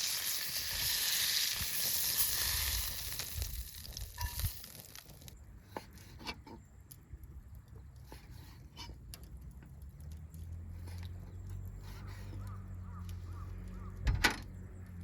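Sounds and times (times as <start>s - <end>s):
steak sizzling in a skillet: 0.0s - 5.3s
light clicks and ticks: 9.0s - 11.8s.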